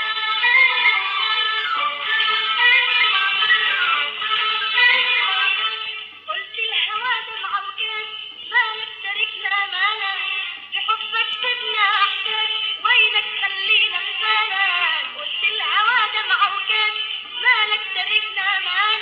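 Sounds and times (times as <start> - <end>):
instrumental accompaniment: 0.0 - 6.3
woman singing: 0.0 - 19.0.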